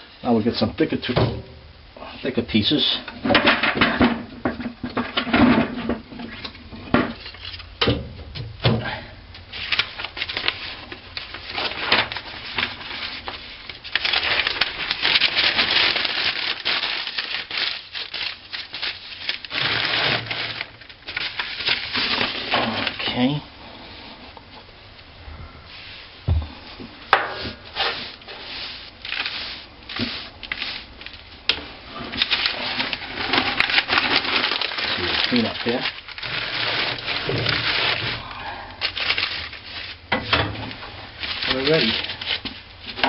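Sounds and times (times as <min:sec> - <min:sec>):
sticks rubbing and scraping: 0:27.4 - 0:38.2.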